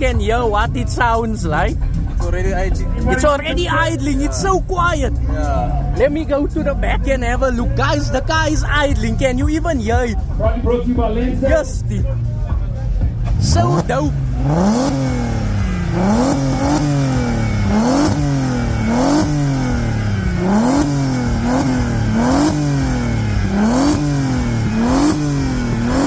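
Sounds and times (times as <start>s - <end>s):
van engine revving: 0.0s - 26.0s.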